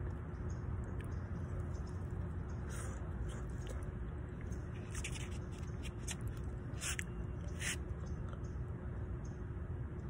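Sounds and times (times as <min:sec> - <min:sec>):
steady low rumble: 0:00.0 - 0:10.0
chewing food: 0:00.8 - 0:08.5.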